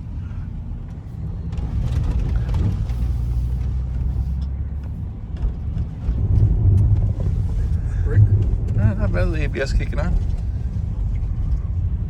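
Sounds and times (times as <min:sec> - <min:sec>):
truck engine and tyres rumbling: 0:00.0 - 0:12.0.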